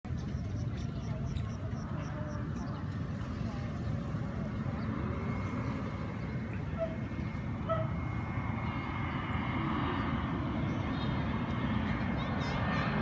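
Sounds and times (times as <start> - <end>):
jet engines rumbling and whining: 0.1 - 13.0.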